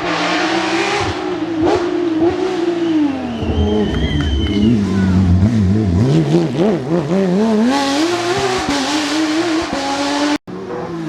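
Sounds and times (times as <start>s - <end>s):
car engine revving: 0.0s - 11.0s
rushing noise: 3.2s - 7.2s.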